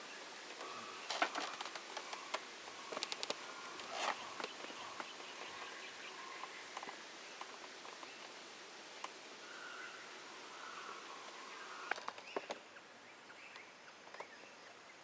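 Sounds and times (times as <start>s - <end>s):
rustling crackle: 0.5s - 5.7s
sharp clicks and crackles: 0.6s - 5.1s.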